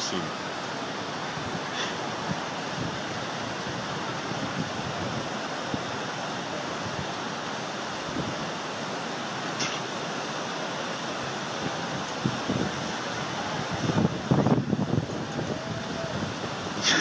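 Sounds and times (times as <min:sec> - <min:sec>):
strong wind blowing: 0:00.0 - 0:17.0
wind buffeting microphone: 0:01.1 - 0:07.2, 0:08.0 - 0:08.7, 0:11.4 - 0:17.0.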